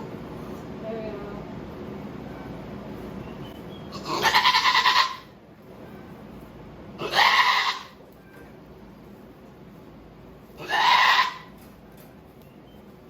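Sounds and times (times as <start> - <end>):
goat bleating: 3.9 - 5.3, 7.0 - 8.0, 10.6 - 11.6.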